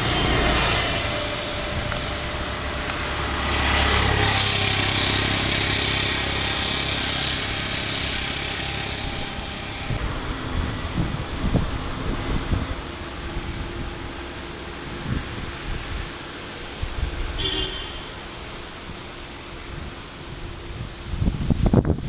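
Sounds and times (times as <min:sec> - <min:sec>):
vehicle passing: 0:00.0 - 0:10.4
road traffic noise: 0:00.0 - 0:22.0
wind buffeting microphone: 0:19.7 - 0:22.0.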